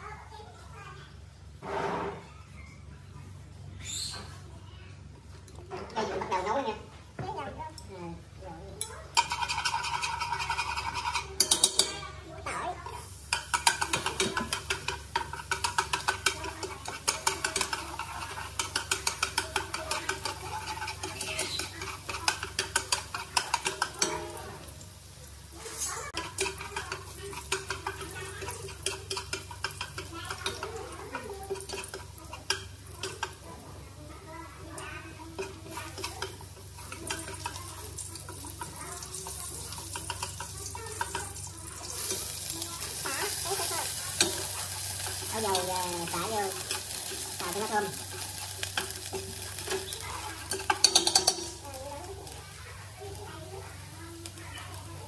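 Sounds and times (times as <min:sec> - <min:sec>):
chopsticks tapping metal pot: 0:08.8 - 0:12.0, 0:13.3 - 0:24.4, 0:26.2 - 0:33.4, 0:35.3 - 0:52.4
food sizzling in oil: 0:08.8 - 0:55.0.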